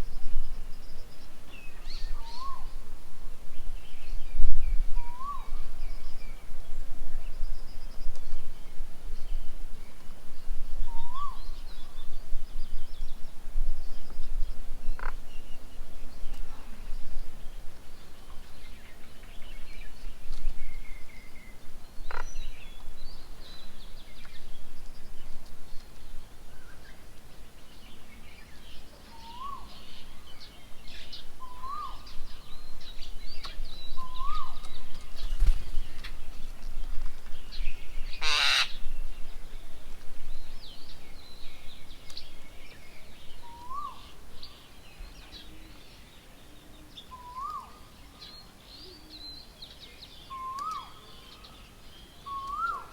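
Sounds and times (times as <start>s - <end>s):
birds chirping: 14.0s - 52.9s.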